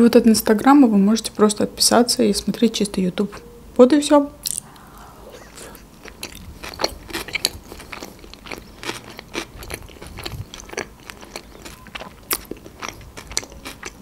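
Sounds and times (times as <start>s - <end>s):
chewing with small crunches: 5.4s - 14.0s.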